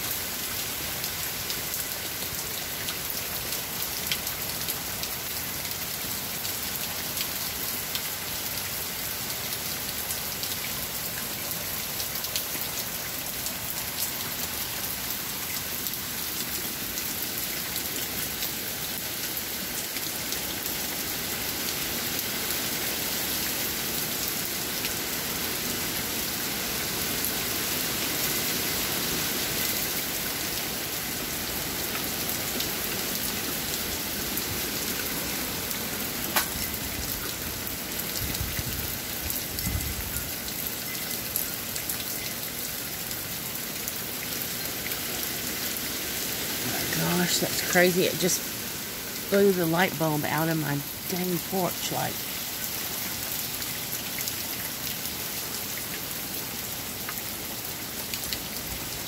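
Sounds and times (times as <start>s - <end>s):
heavy rain pouring: 0.0s - 59.0s
drops dripping off a roof: 34.2s - 38.3s.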